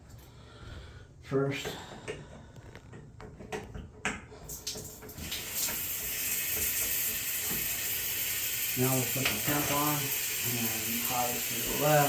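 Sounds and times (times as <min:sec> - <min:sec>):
water running with hiss: 0:04.5 - 0:12.0.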